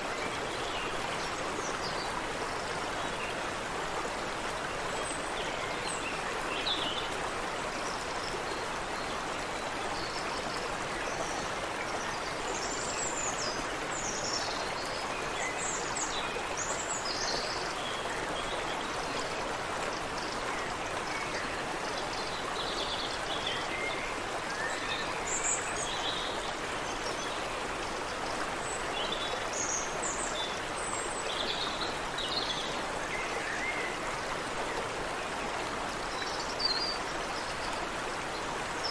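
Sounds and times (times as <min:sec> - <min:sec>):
water running over rocks: 0:00.0 - 0:38.9.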